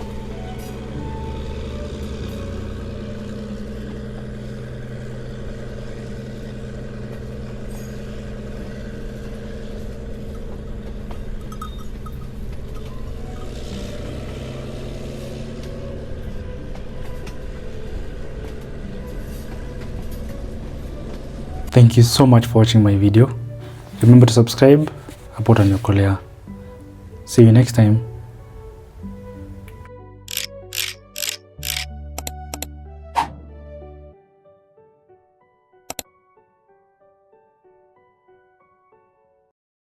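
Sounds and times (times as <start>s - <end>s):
road rolling noise: 0.0s - 32.7s
vehicle engine droning: 0.0s - 33.3s.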